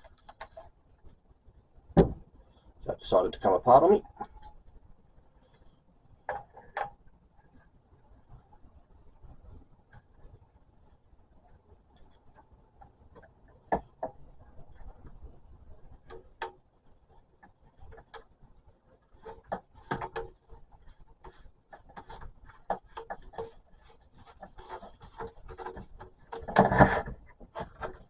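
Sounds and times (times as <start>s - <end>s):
plastic parts clicking and knocking: 0.0s - 1.2s, 6.2s - 7.1s, 11.4s - 28.0s
plastic scraping: 19.0s - 28.0s.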